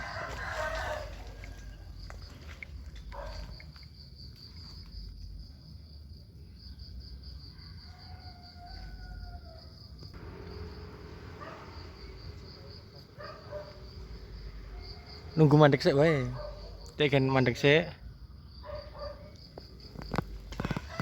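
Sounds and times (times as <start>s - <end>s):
insects chirping trill: 0.0s - 21.0s
low outdoor rumble: 9.3s - 16.9s.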